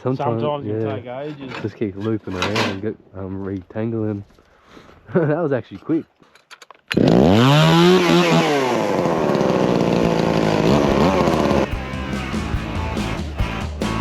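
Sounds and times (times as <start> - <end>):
chainsaw revving: 6.9 - 13.1.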